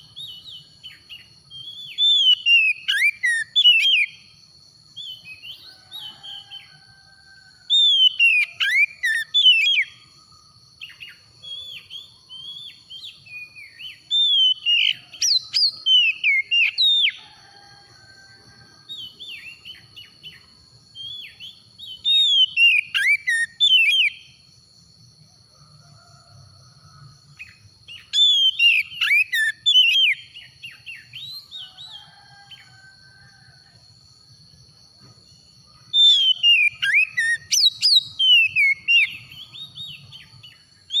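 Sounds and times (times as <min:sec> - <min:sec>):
bird singing whistled notes: 0:00.0 - 0:06.8, 0:07.7 - 0:10.2, 0:10.8 - 0:17.2, 0:18.9 - 0:24.4, 0:27.4 - 0:32.7, 0:35.9 - 0:41.0.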